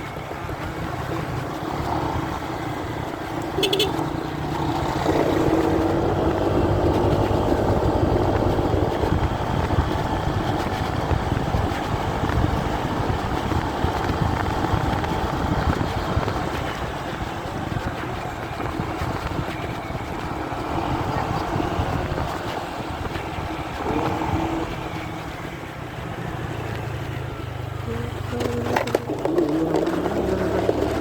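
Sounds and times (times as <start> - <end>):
motorcycle engine: 0.0 - 31.0
road noise: 0.0 - 31.0
wind buffeting: 4.1 - 25.9.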